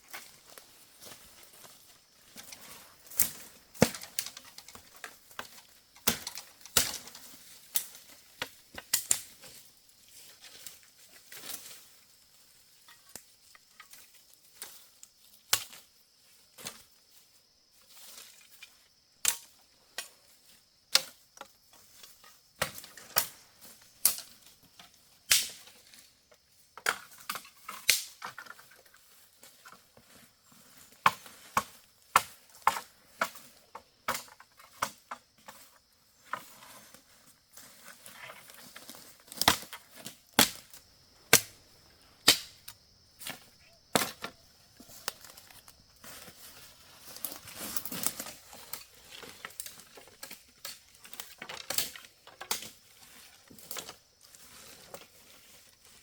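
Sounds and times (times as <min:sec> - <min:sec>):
blade chopping firewood: 0:25.3 - 0:25.6, 0:26.8 - 0:28.5, 0:39.3 - 0:41.6, 0:42.2 - 0:44.4.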